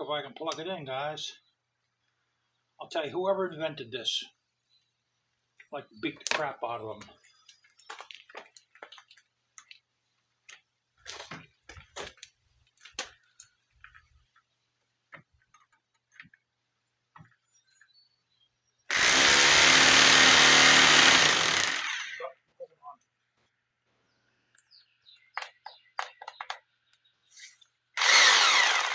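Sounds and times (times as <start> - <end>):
hammer drill running: 18.9 - 22.2, 28.0 - 28.9.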